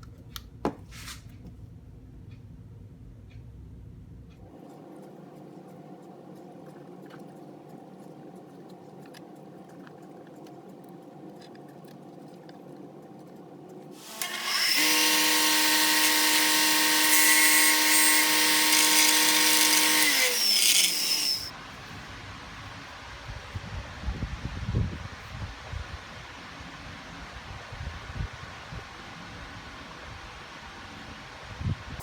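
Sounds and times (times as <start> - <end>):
power tool whining: 14.0 - 21.5.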